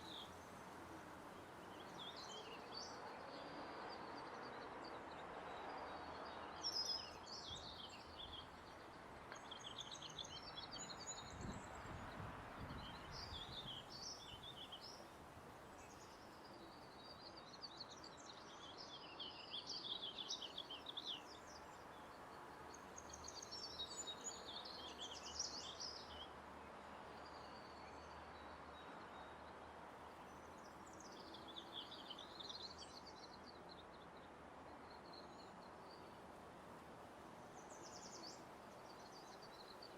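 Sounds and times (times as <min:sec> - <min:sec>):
low background noise: 0:00.0 - 0:39.9
small birds chirping: 0:37.5 - 0:39.9.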